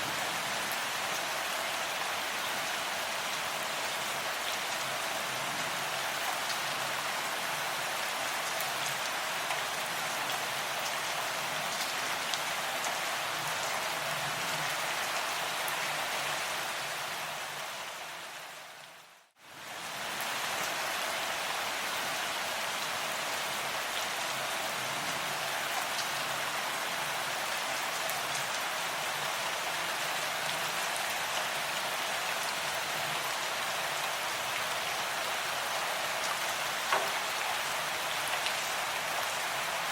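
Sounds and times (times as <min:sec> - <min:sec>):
rain pattering: 0:20.0 - 0:39.9.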